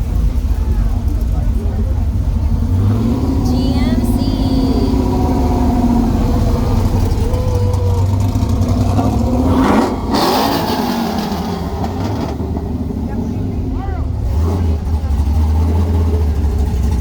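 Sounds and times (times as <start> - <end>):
car engine running and revving: 0.0 - 17.0.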